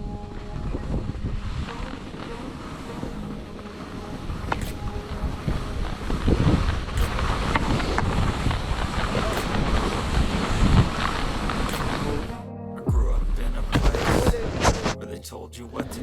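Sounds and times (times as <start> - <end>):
wind buffeting microphone: 0.0 - 12.3
skis hissing over snow: 4.2 - 12.2.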